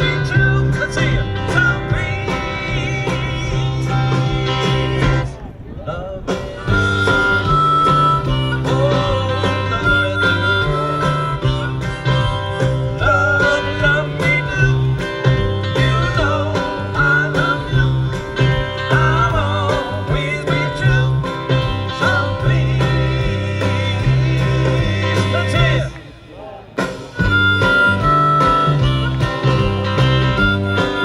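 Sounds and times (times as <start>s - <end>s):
blues country band playing: 0.0s - 31.0s
harmonica: 6.6s - 26.0s, 26.8s - 31.0s.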